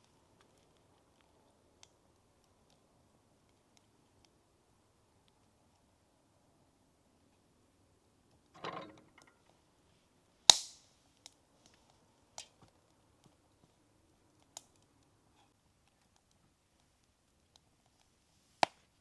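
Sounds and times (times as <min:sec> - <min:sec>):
sharp loud snap: 0:10.5 - 0:10.9.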